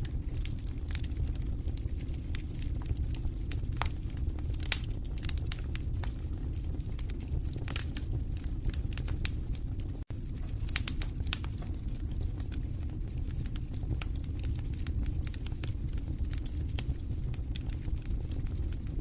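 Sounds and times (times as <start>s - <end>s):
low rumble of flames: 0.0s - 19.0s
wood fire crackling: 0.0s - 19.0s.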